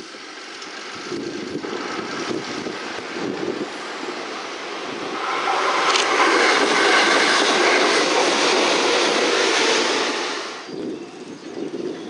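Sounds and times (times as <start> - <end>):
train wheels clattering on rails: 4.0 - 12.0.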